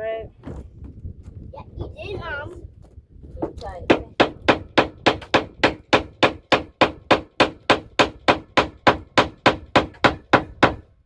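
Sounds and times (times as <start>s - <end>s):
hammer blows on wooden board: 3.4s - 10.9s.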